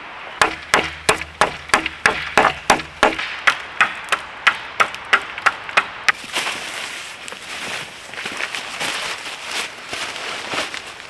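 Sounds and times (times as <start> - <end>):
hatchet chopping wood: 0.4 - 6.2.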